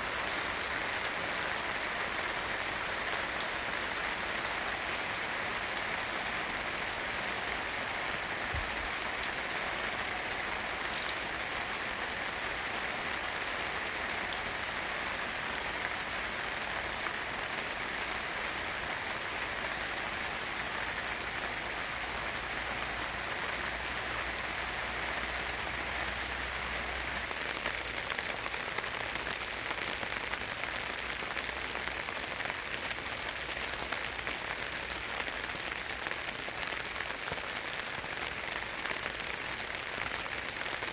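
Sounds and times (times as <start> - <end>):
rain on a tarp: 0.0 - 40.9.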